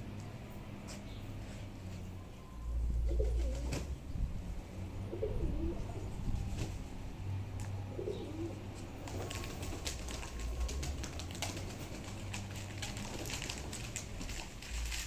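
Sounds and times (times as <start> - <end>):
pigeons cooing: 2.8 - 4.1, 5.0 - 6.9, 7.8 - 14.4.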